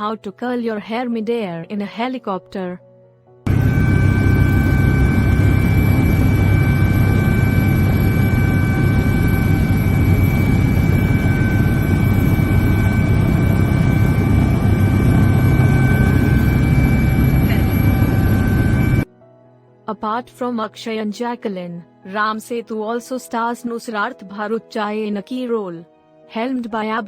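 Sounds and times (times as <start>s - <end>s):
helicopter cabin rumble and whine: 3.5s - 19.1s.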